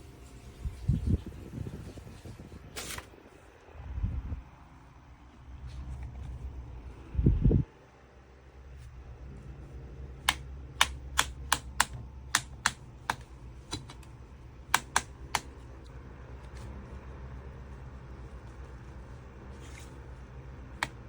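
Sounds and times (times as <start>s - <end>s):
steady low hum: 0.0s - 21.0s
sharp clicks: 10.3s - 14.1s.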